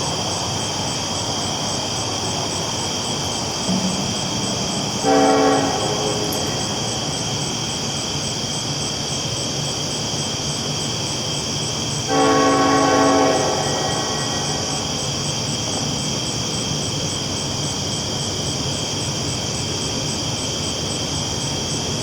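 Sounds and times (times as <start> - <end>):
train rolling along tracks: 0.0 - 22.0
train horn blasts: 3.7 - 7.6, 12.1 - 15.2.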